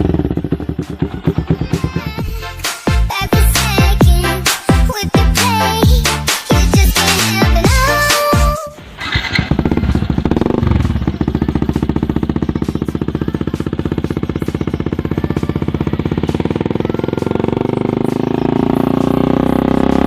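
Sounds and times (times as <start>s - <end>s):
motorcycle engine idling: 0.0s - 2.4s, 6.6s - 20.0s.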